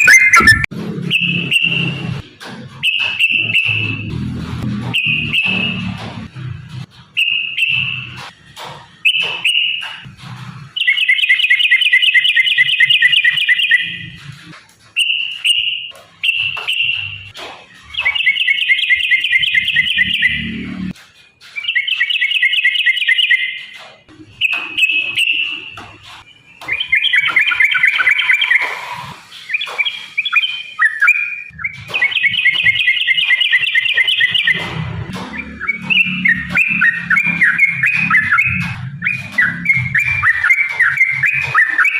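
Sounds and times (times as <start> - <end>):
bulbul chattering song: 0.0 - 2.2, 2.8 - 6.0, 15.0 - 21.0, 21.6 - 41.9.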